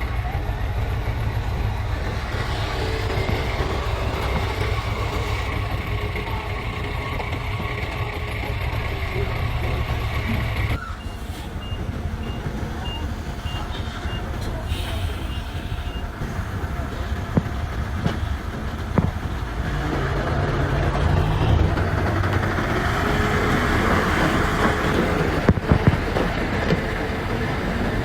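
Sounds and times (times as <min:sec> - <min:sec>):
heavy diesel machinery engine rumble: 0:00.0 - 0:28.0
vehicle reversing alarm beeps: 0:10.6 - 0:18.2.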